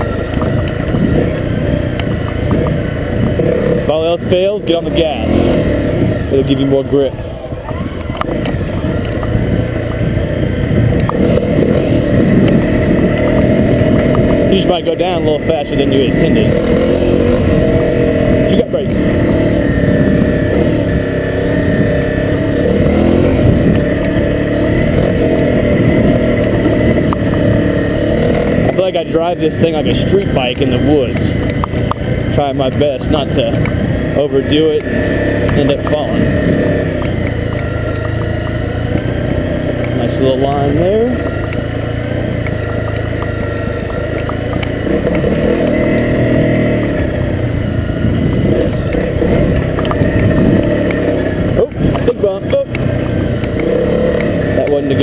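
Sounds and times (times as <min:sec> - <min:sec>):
motorcycle engine revving: 0:00.0 - 0:55.0
light ticks: 0:41.2 - 0:45.3, 0:48.3 - 0:51.1.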